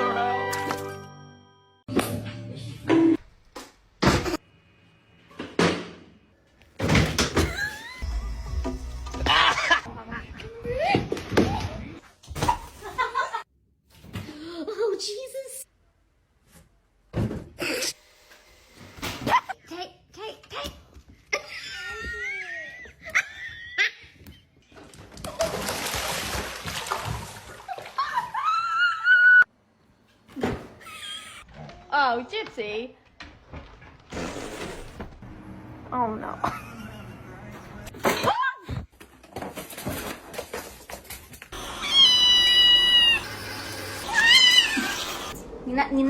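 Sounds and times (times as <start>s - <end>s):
water splashing: 25.2s - 28.3s
cat meowing: 41.8s - 43.3s.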